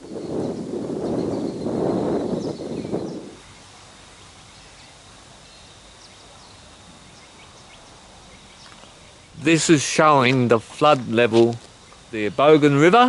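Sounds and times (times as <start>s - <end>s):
footsteps on dry leaves: 9.9s - 12.1s.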